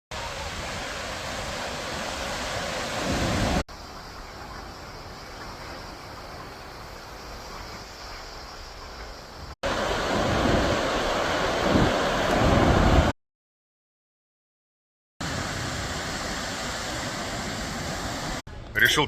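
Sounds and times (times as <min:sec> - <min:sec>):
ocean surf: 0:00.1 - 0:13.1, 0:15.2 - 0:19.0
wind on microphone: 0:09.7 - 0:13.1.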